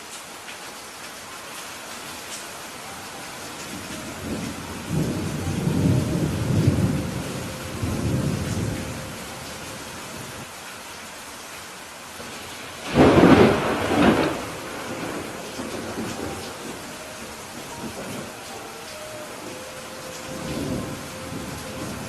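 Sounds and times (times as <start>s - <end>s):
steady rain: 0.0s - 22.0s
thunder rumbling: 3.5s - 10.4s, 12.3s - 22.0s
sharp thunderclap: 12.8s - 16.7s.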